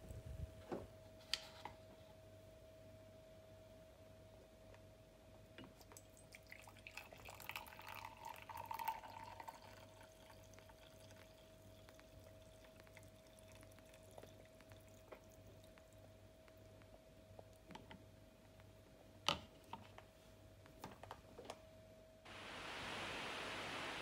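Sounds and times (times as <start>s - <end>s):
faint steady hum: 0.0s - 24.0s
water poured into a mug: 6.0s - 15.4s.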